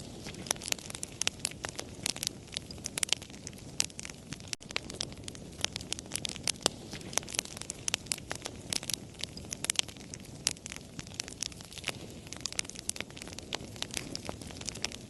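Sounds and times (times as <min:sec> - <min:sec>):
flames rushing: 0:00.0 - 0:15.0
wood fire crackling: 0:00.0 - 0:15.0.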